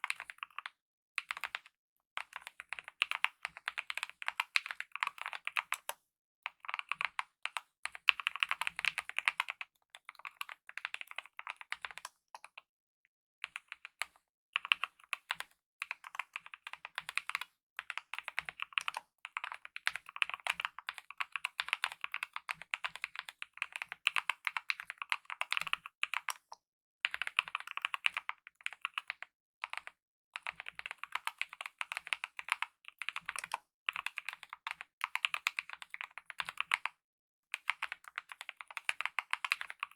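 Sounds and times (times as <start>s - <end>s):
typing on mechanical keyboard: 0.0s - 12.6s, 13.4s - 39.9s.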